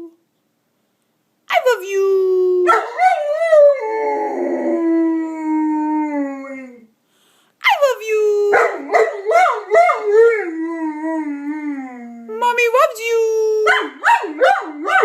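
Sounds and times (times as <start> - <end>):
dog howling: 2.6 - 6.9, 8.5 - 12.3.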